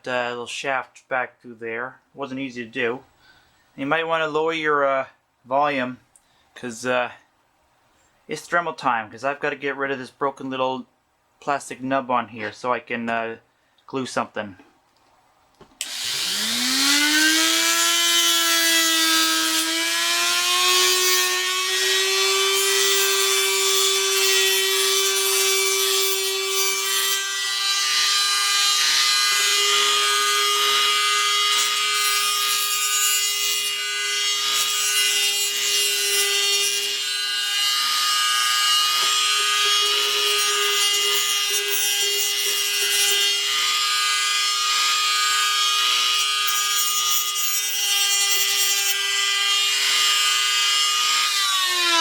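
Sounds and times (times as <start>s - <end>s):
rotary tool whining: 15.8s - 52.0s.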